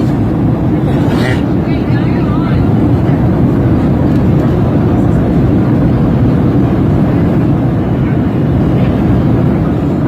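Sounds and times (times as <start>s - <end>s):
airplane cabin rumbling hiss: 0.0s - 10.0s.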